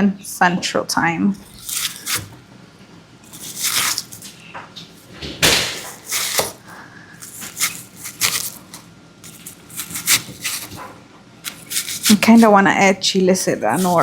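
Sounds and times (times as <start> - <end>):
utensils and dishes scraping: 1.4 - 2.3, 7.2 - 12.6, 13.4 - 14.0.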